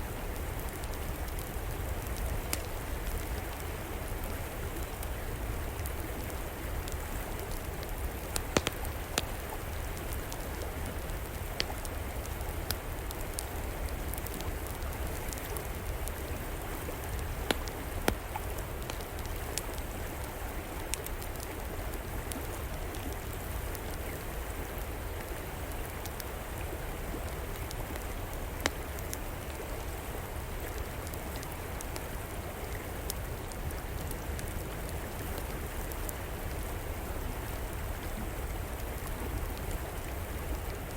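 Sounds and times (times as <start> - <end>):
fire crackling: 0.0 - 40.9
river water flowing: 0.0 - 40.9
fire sharp pops: 8.4 - 9.3, 17.2 - 19.8.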